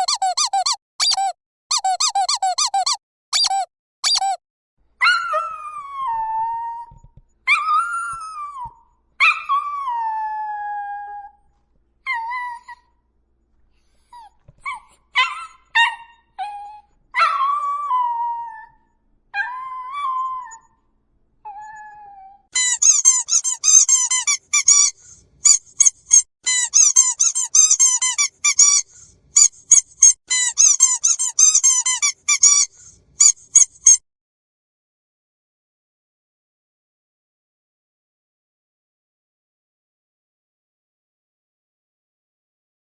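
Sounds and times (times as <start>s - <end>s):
puppy yelping: 0.0s - 4.4s, 5.0s - 6.9s, 7.5s - 11.4s, 14.1s - 18.8s, 21.5s - 34.0s
squeaky dog toy squeaking: 0.0s - 4.4s, 22.6s - 34.0s
puppy howling: 5.0s - 11.4s, 14.6s - 20.8s, 21.5s - 24.2s.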